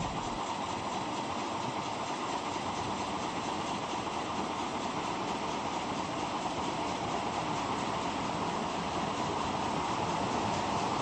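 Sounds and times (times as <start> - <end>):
train running: 0.0 - 11.0.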